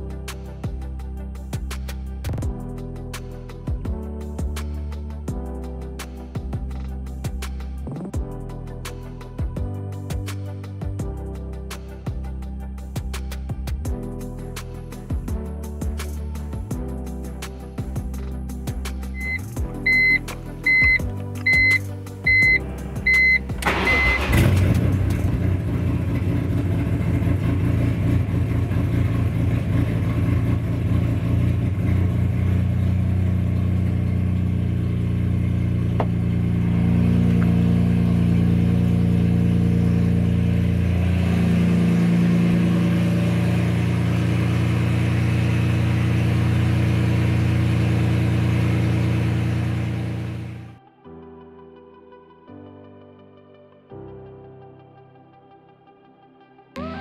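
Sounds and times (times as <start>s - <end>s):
short beeps: 19.2s - 24.3s
car engine starting and idling: 19.2s - 50.8s.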